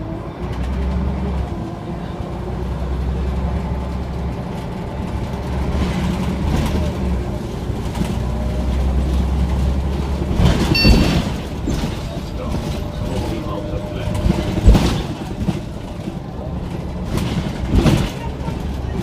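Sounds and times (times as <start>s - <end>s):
bus engine drone: 0.0s - 19.0s
road rumble and rattles: 0.0s - 19.0s
brief high tone: 10.7s - 11.4s.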